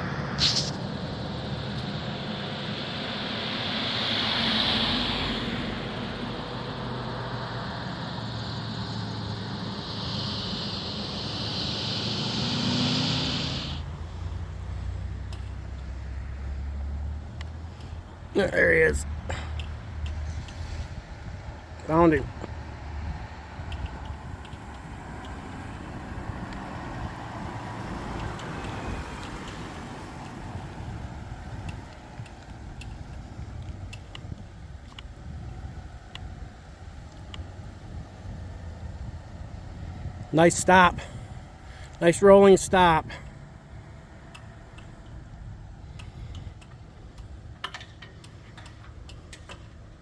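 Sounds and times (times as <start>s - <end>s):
low traffic rumble: 0.0s - 50.0s
motor vehicle running: 0.0s - 50.0s
hiss: 0.1s - 14.8s, 22.4s - 35.9s.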